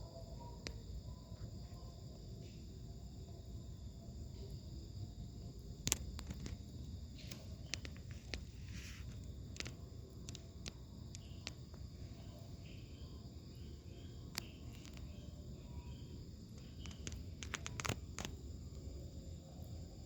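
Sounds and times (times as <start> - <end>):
high-pitched insect chirring: 4.3 - 20.0
sharp clicks: 5.8 - 6.6, 7.2 - 11.8, 14.3 - 15.1, 16.6 - 18.4.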